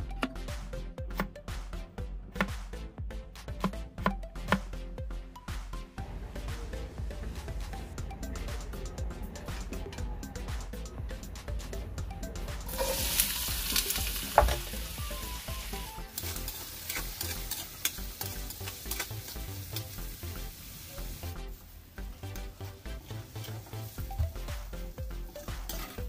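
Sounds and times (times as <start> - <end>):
utensil scraping metal wok: 12.7 - 14.7, 16.1 - 20.0, 25.4 - 26.0
vegetables sizzling in hot oil: 12.7 - 21.7.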